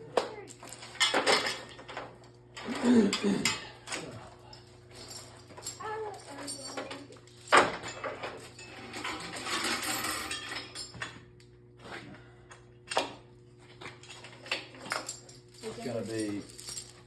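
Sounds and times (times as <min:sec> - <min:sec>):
steady low hum: 0:00.0 - 0:17.0
clattering and rattling: 0:00.6 - 0:04.2, 0:04.9 - 0:11.2.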